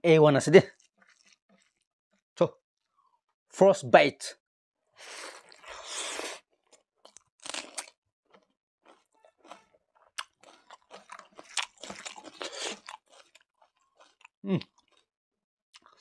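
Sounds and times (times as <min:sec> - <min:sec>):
crunchy chewing: 0:00.7 - 0:01.8, 0:05.1 - 0:15.1, 0:15.8 - 0:16.0.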